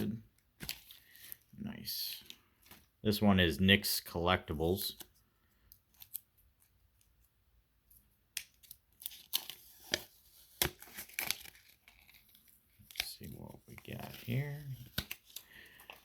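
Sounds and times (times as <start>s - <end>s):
packaging tearing and crinkling: 9.0s - 13.2s.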